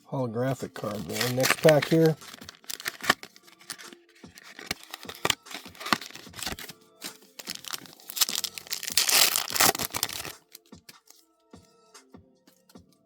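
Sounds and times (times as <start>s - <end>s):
foil wrapper tearing and crinkling: 0.8s - 10.6s.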